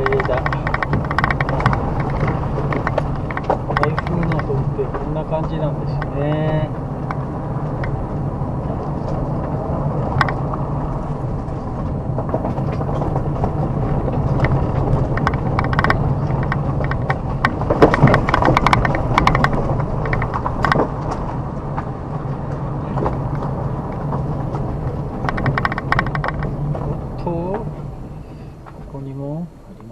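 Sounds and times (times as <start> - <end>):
twigs crackling under tyres: 0.0 - 29.1
car engine and tyres: 0.0 - 29.9.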